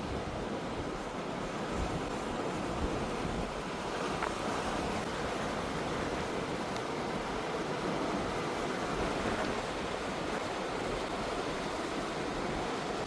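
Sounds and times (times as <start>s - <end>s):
wind noise on microphone: 0.0s - 6.6s
ocean surf washing ashore: 0.0s - 13.0s.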